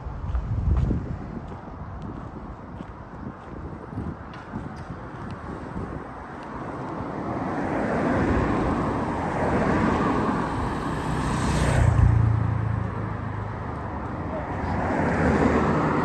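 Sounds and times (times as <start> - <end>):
vehicle passing: 6.6 - 16.0.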